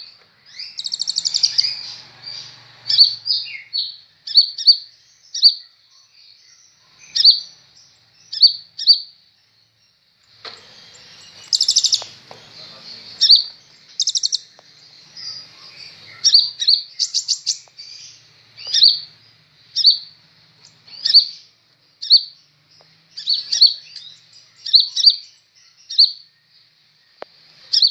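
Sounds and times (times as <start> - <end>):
sunbird chirping: 0.0 - 27.9
bird rattling trills: 0.6 - 3.4, 10.3 - 14.6.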